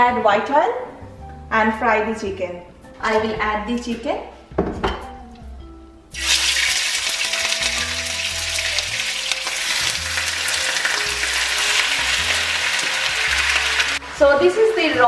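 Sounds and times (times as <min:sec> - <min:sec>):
chicken sizzling in hot oil: 0:06.1 - 0:15.0.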